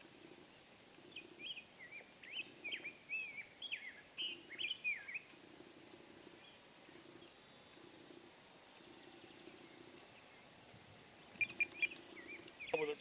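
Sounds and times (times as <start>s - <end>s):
songbird singing whistled notes: 1.1s - 5.3s, 11.3s - 13.0s.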